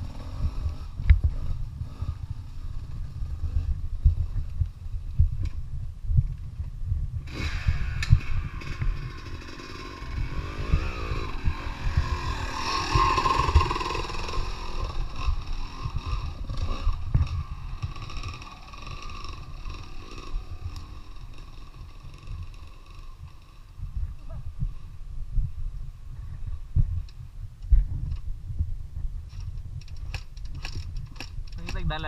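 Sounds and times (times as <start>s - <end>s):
dirt bike engine revving: 7.2s - 24.9s
low rumble with knocks: 15.0s - 19.7s.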